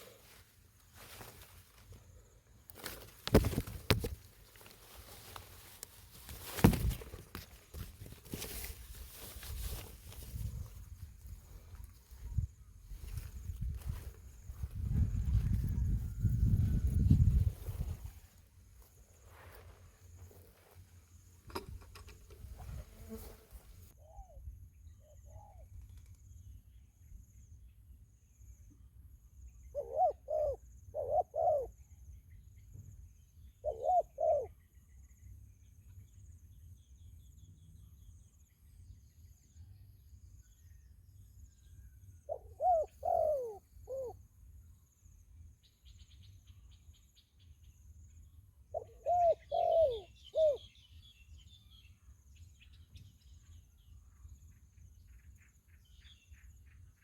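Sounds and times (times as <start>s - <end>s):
faint insect buzz: 16.9s - 24.0s
dove cooing: 29.7s - 31.7s, 33.6s - 34.5s, 42.3s - 44.2s, 48.7s - 50.7s.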